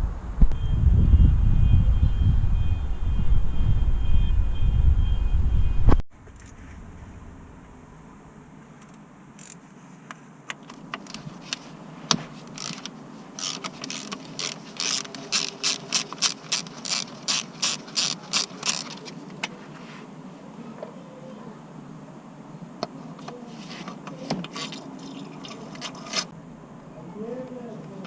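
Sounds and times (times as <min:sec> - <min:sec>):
ratchet wrench clicking: 0:09.4 - 0:09.6, 0:12.5 - 0:19.0
tools clicking and knocking: 0:12.5 - 0:19.5, 0:23.2 - 0:26.3.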